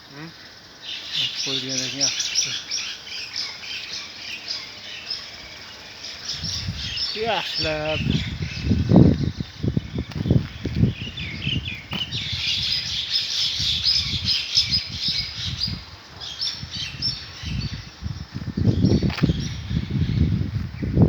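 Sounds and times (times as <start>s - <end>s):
small birds chirping: 0.0s - 21.0s
low rumbling with dull thuds: 7.7s - 12.9s, 14.9s - 21.0s.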